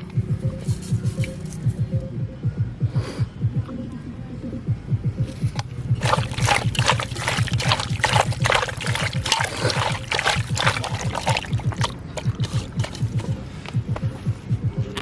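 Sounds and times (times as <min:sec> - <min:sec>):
music with low beat: 0:00.0 - 0:15.0
water splashing and trickling: 0:00.7 - 0:01.7, 0:05.5 - 0:14.2.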